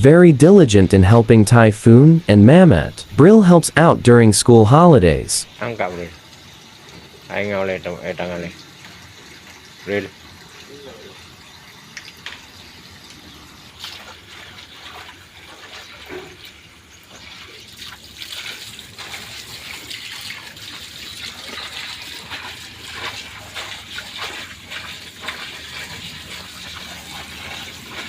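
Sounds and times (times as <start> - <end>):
water splashing while washing by hand: 11.6 - 28.0.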